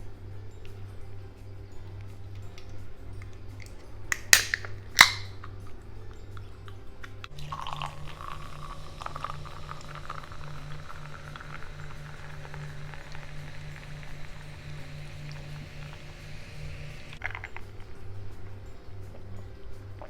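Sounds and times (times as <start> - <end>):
wet mouth clicks: 2.5 - 7.4, 17.1 - 17.9
person chewing: 17.2 - 19.3.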